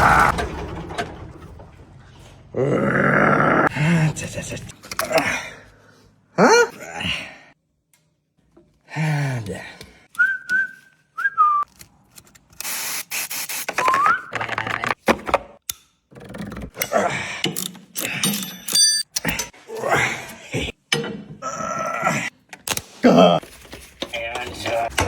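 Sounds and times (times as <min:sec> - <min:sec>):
wordless vocal sounds: 0:02.5 - 0:07.6
person whistling: 0:10.2 - 0:11.7, 0:13.8 - 0:14.3.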